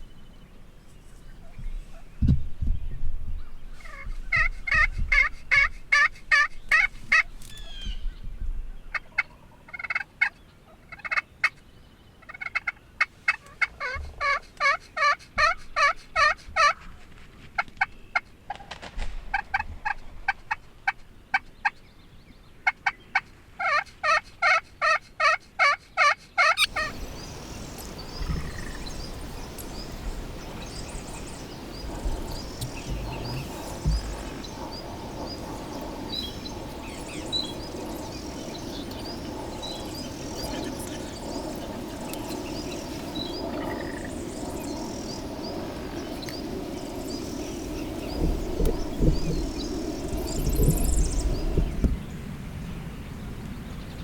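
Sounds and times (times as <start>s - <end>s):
steady outdoor hiss: 0.0s - 54.0s
turkey yelping: 23.6s - 27.0s.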